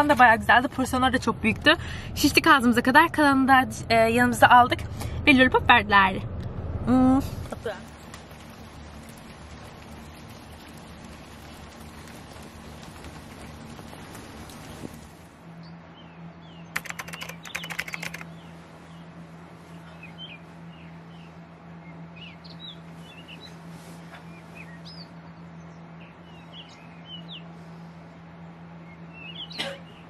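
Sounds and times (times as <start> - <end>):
steady low hum: 0.0 - 30.0
small birds chirping: 7.8 - 30.0
rapid sharp clicks: 16.8 - 18.3.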